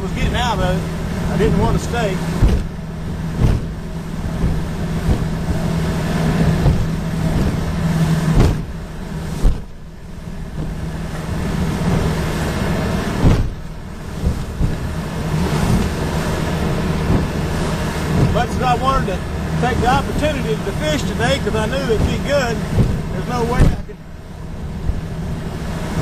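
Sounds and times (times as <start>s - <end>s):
boat hull banging on waves: 0.0s - 26.0s
outboard motor running: 0.0s - 26.0s.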